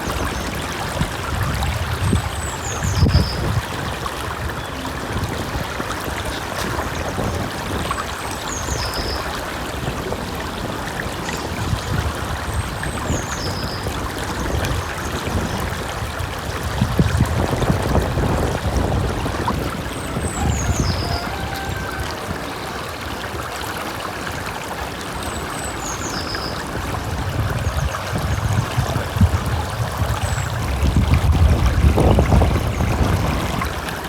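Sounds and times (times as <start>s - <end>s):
stream water rushing: 0.0s - 34.0s
songbird singing: 19.5s - 23.2s.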